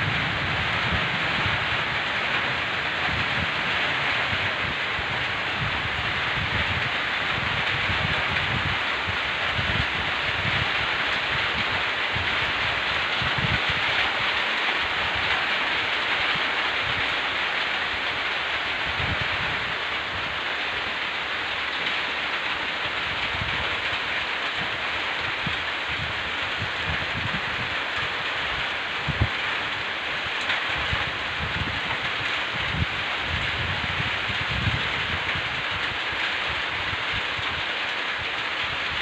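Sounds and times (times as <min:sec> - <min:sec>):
low rumbles: 0:00.0 - 0:29.7
heavy rain hiss: 0:00.0 - 0:39.0.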